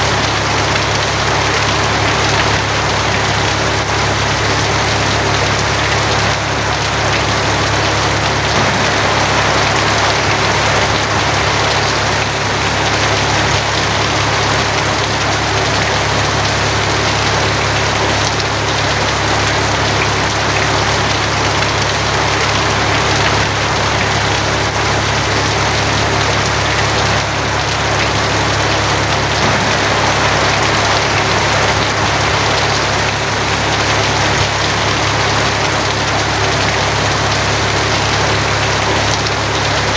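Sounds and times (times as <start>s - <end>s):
rain on a tin roof: 0.0s - 39.9s
low hum: 8.6s - 13.0s, 28.6s - 34.2s.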